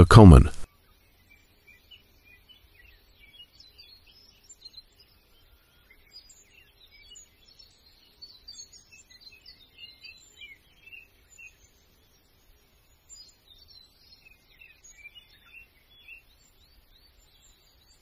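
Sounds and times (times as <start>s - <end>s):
faint small birds chirping: 0.7s - 18.0s.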